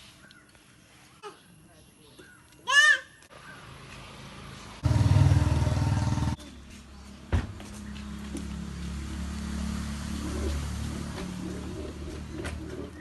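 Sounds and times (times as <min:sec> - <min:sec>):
engine low hum: 0:03.9 - 0:06.5.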